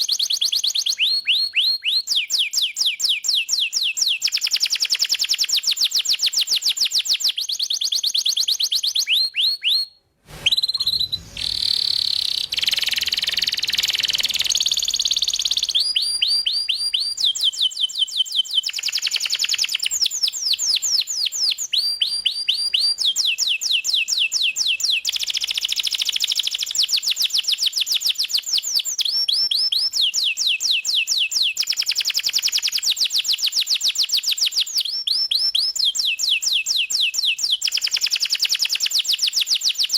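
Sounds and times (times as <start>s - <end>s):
canary singing trills: 10.5s - 20.9s.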